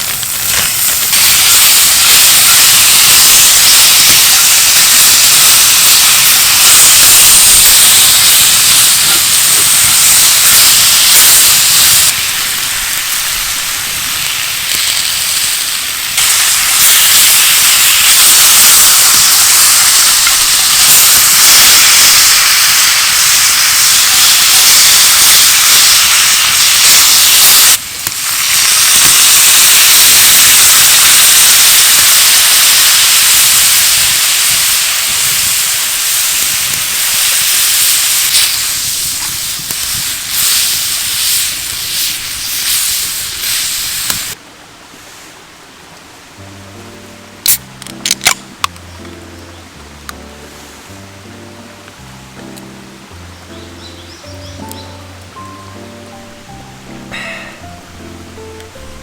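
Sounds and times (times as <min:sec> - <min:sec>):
food sizzling in a pot: 0:00.0 - 0:44.4.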